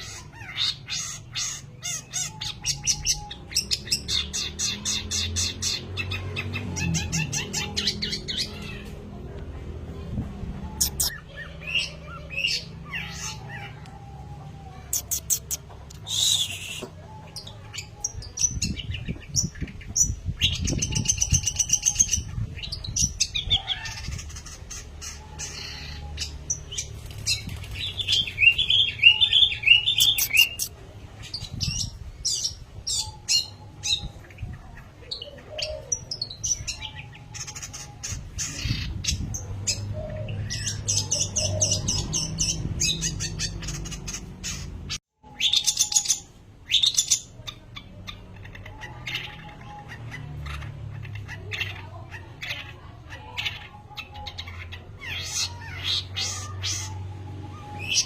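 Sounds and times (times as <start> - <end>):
shrike singing: 10.6 - 47.4.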